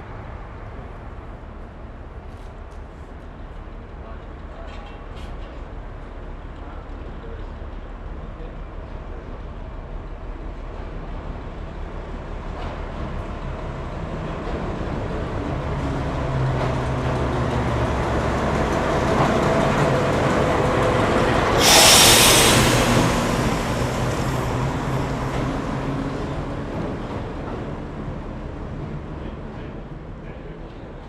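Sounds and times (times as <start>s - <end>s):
train rumbling past: 0.0s - 31.0s
short hiss: 21.6s - 24.6s.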